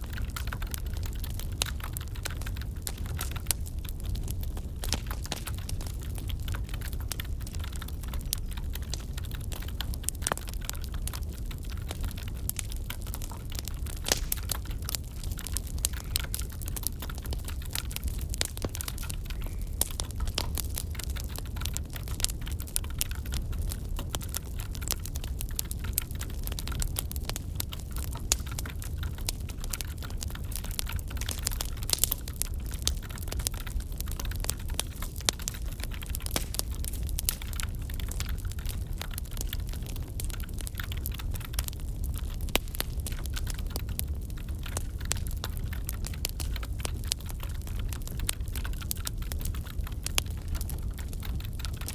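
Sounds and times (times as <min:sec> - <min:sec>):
burning logs popping and snapping: 0:00.0 - 0:51.9
fire flames rumbling: 0:00.0 - 0:51.9.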